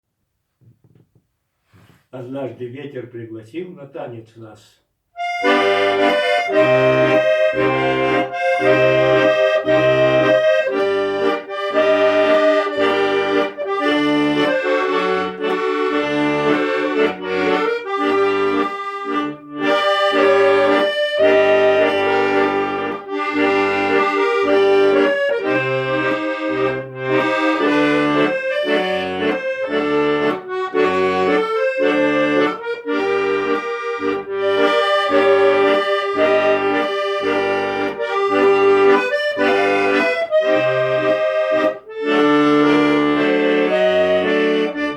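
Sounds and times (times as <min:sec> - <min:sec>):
accordion music: 0:05.2 - 0:44.9.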